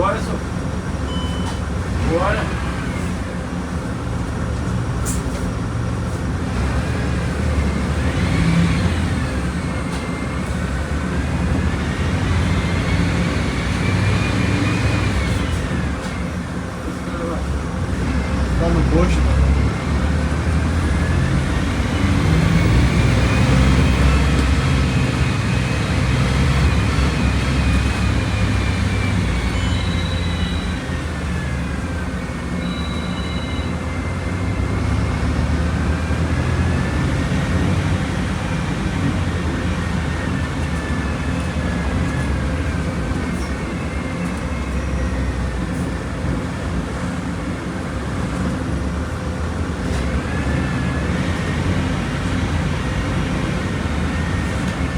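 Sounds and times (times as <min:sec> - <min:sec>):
bus engine drone: 0:00.0 - 0:54.9
high beeps: 0:01.1 - 0:01.6.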